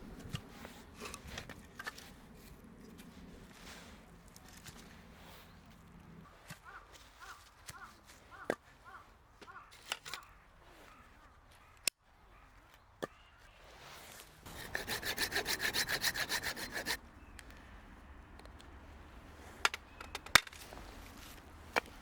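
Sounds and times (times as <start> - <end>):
hand saw cutting wood: 14.5 - 17.0.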